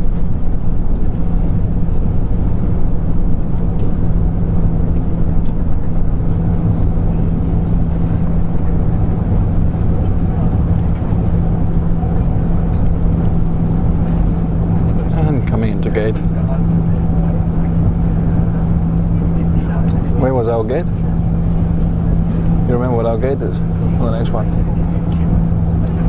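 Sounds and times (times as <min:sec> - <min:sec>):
aircraft cabin drone: 0:00.0 - 0:26.0
idling jet engines rumble: 0:00.0 - 0:26.0.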